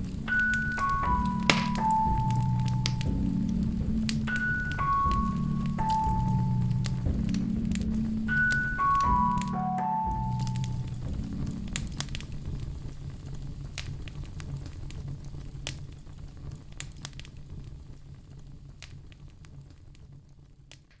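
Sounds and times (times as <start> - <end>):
low steady rumble: 0.0 - 20.6
fire crackling and popping: 0.0 - 21.0.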